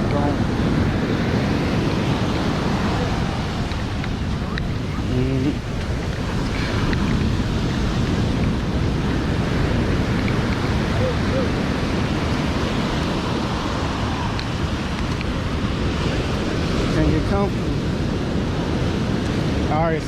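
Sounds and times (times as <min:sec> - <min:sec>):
ocean surf on sandy beach: 0:00.0 - 0:20.0
wind buffeting microphone: 0:00.0 - 0:20.0
faint voices: 0:02.0 - 0:08.7, 0:10.8 - 0:12.2.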